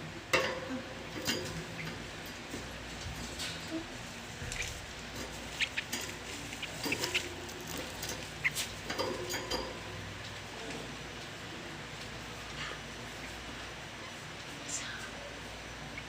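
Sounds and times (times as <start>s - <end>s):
chicks begging cheeps: 5.6s - 5.9s.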